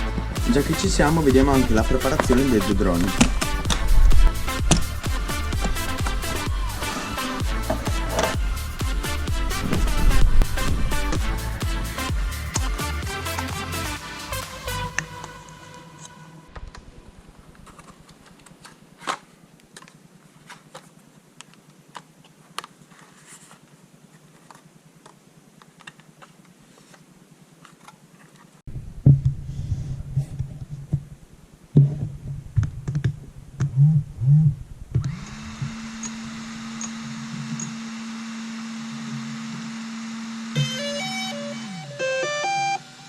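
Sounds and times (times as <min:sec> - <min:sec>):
steady hum with hiss: 0:00.0 - 0:43.0
knocks and bumps: 0:28.7 - 0:35.8.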